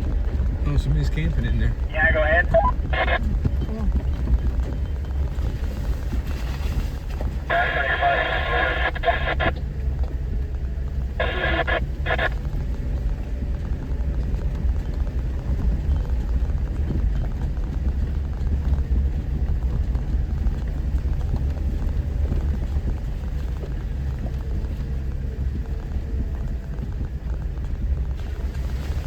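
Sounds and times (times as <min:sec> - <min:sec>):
engine and drivetrain rumble: 0:00.0 - 0:29.0
two-way radio crackling: 0:00.7 - 0:03.7, 0:07.4 - 0:12.9.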